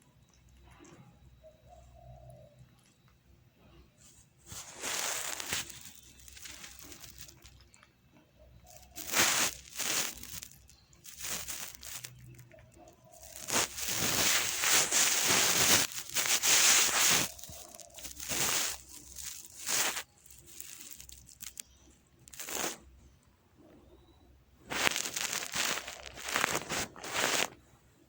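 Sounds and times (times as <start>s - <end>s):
rustling crinkling noise: 2.6s - 23.1s, 24.6s - 27.7s.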